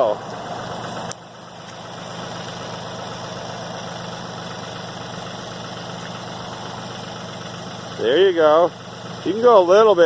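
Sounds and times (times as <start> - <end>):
tractor engine idling: 0.0 - 10.0.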